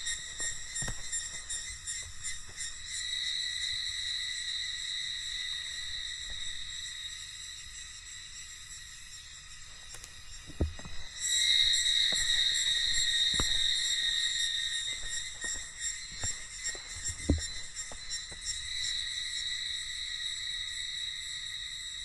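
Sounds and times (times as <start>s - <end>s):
cicadas buzzing: 0.0s - 22.0s
soft thumps: 10.4s - 14.1s, 14.9s - 18.4s.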